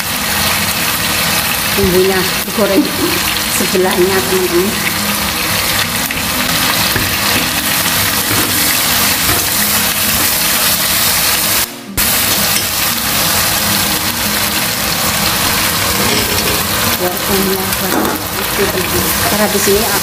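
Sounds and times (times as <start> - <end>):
food sizzling in oil: 0.0 - 20.0.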